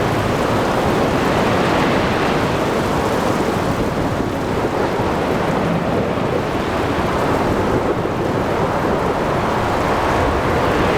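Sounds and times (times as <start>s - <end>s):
wind: 0.0s - 10.9s.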